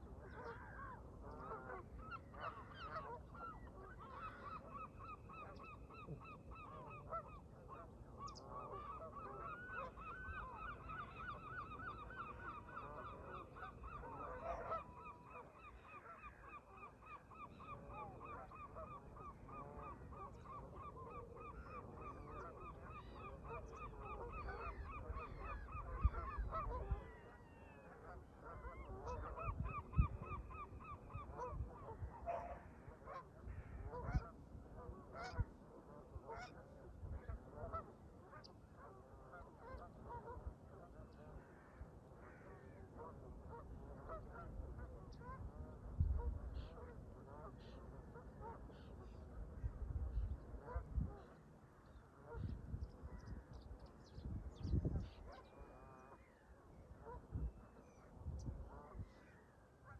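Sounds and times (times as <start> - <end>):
geese honking: 5.8 - 16.4
wind rumbling on microphone: 23.6 - 27.8, 28.8 - 32.4, 36.8 - 37.8, 43.6 - 47.2, 49.1 - 51.4, 52.2 - 55.6, 56.9 - 59.3.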